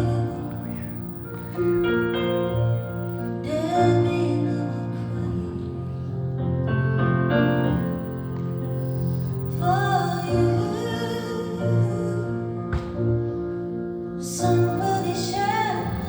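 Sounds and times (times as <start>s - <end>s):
piano accompaniment: 0.0s - 16.0s
woman singing: 14.3s - 16.0s.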